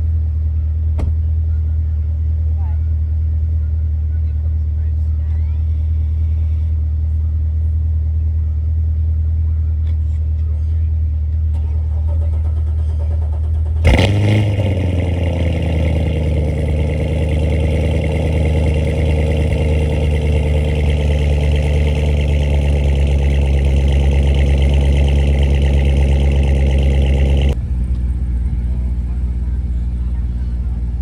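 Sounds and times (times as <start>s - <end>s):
car engine running: 13.6s - 31.0s.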